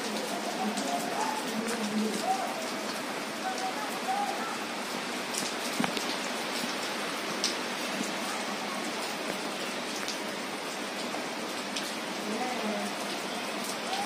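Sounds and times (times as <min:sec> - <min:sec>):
rain on concrete and leaves: 0:00.0 - 0:14.0.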